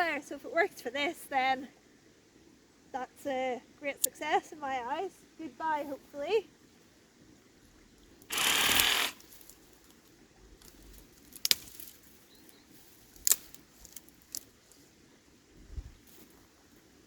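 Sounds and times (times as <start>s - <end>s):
reciprocating saw cutting: 8.3s - 9.2s
sharp snaps: 13.2s - 13.6s.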